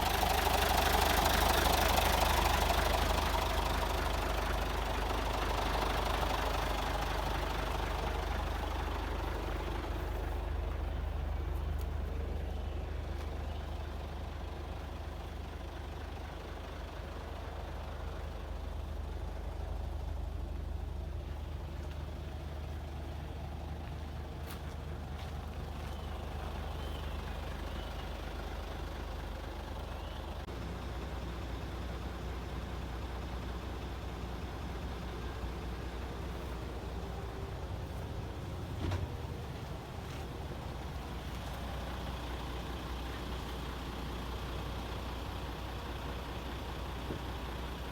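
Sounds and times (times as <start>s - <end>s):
diesel truck engine idling: 0.0s - 47.9s.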